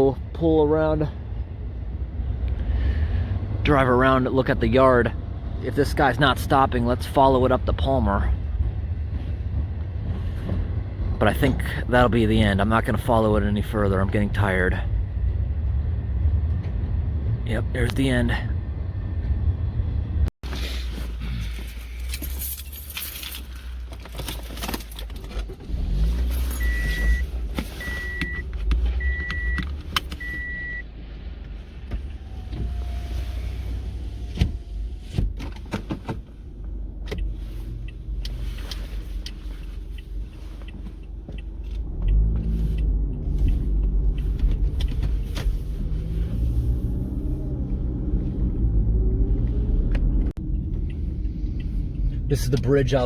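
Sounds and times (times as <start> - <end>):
car engine and road rumble: 0.0 - 53.0
short high beeps: 26.6 - 28.4.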